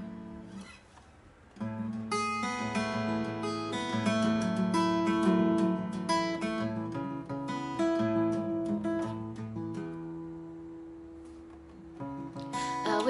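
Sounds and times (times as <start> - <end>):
acoustic guitar strumming chords: 0.0 - 0.8, 1.6 - 13.0.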